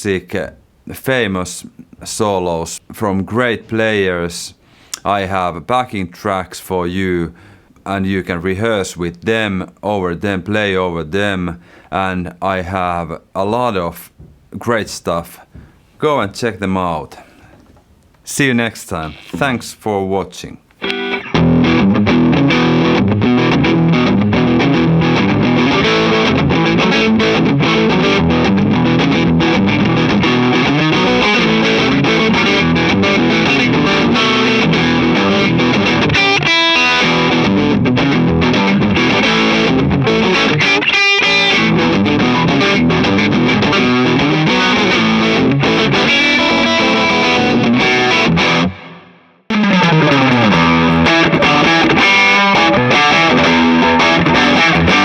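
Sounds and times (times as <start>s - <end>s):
distorted electric guitar music: 20.8s - 55.0s.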